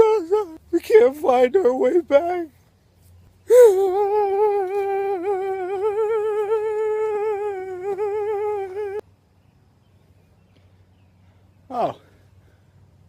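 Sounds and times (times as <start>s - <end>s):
person humming a held note: 3.5s - 9.0s.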